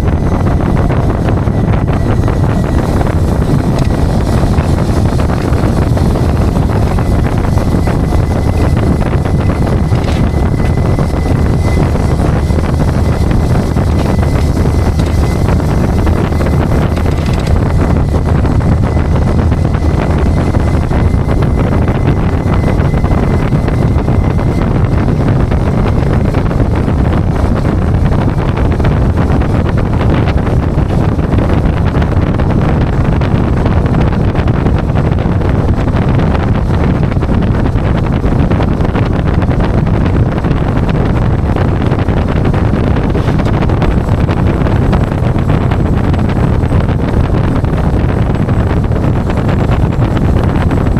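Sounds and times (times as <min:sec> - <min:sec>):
truck engine and road noise: 0:00.0 - 0:50.9
wind buffeting microphone: 0:00.0 - 0:50.9.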